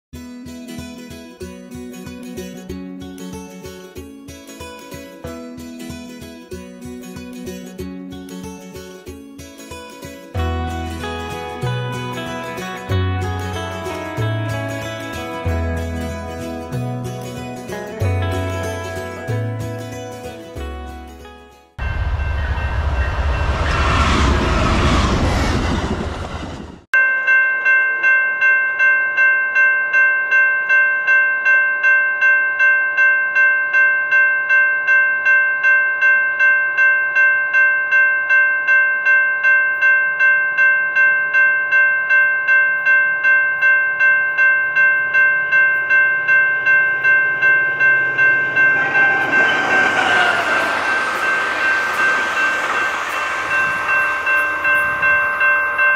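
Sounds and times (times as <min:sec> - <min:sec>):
railroad crossing bell ringing: 0:10.4 - 0:21.2, 0:21.8 - 0:23.7, 0:27.0 - 0:55.9
train rumble: 0:21.8 - 0:26.9, 0:45.8 - 0:55.9.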